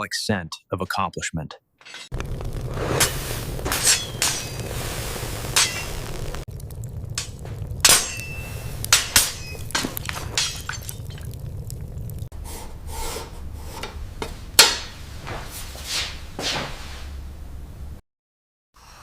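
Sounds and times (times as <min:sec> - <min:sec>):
metal tools clinking: 0:01.8 - 0:02.1.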